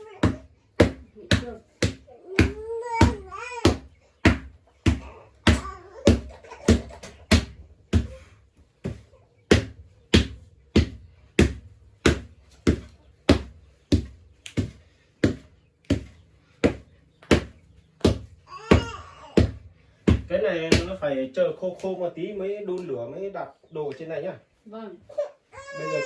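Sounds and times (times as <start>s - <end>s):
wet mud being beaten: 0.2s - 8.2s, 8.8s - 21.1s.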